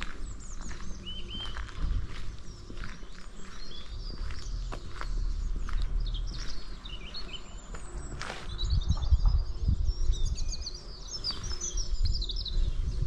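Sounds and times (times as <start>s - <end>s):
small birds chirping and trilling: 0.0s - 13.0s.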